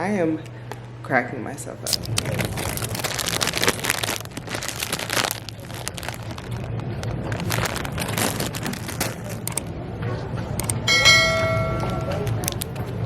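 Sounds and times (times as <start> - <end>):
steady low hum: 0.0 - 13.0
rustling and crinkling handling: 1.8 - 9.7.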